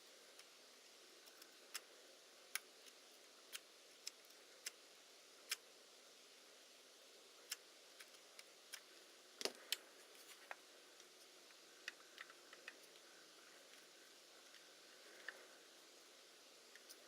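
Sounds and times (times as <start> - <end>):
faint hiss: 0.0 - 17.0
small parts and tools clicking: 1.2 - 1.9, 2.5 - 4.8, 7.4 - 9.8, 10.4 - 15.7, 16.6 - 17.0.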